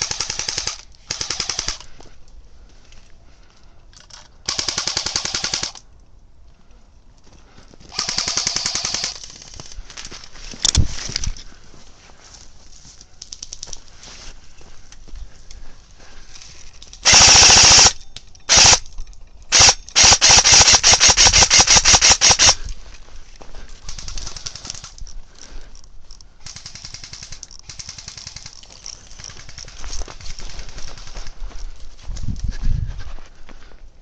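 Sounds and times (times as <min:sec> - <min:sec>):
airsoft rifle firing: 0:00.0 - 0:01.9, 0:04.5 - 0:05.8, 0:07.9 - 0:09.4, 0:17.0 - 0:18.8, 0:19.5 - 0:22.6
rustling and crackling: 0:07.2 - 0:17.2, 0:22.6 - 0:33.6.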